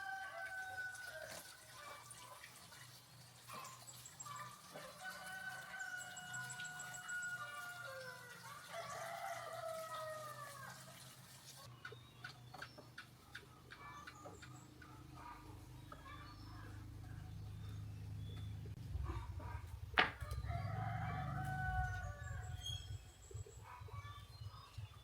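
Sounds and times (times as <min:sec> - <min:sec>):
rooster crowing: 0:00.0 - 0:01.3, 0:04.9 - 0:10.8, 0:20.3 - 0:22.7.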